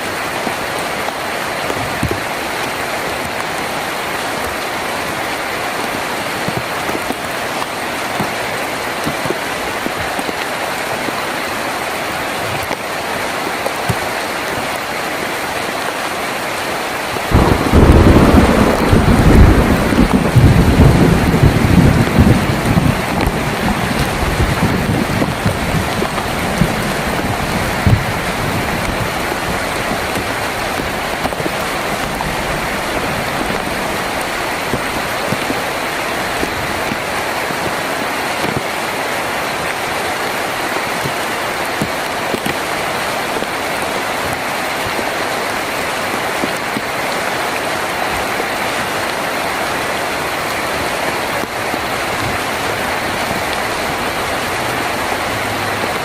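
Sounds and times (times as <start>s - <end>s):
heavy rain on a tin roof: 0.0s - 56.0s
low rumble of thunder: 17.3s - 35.0s.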